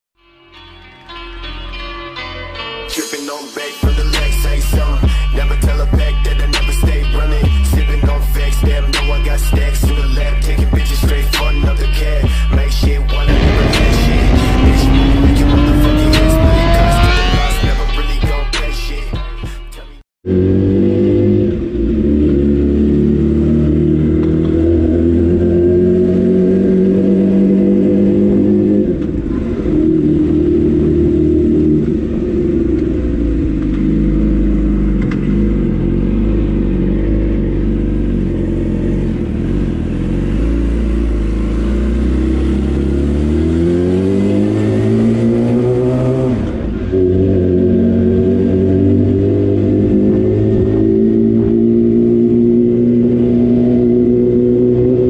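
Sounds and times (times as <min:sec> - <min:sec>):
sport motorcycle engine revving: 0:13.1 - 0:18.0, 0:20.2 - 0:55.0.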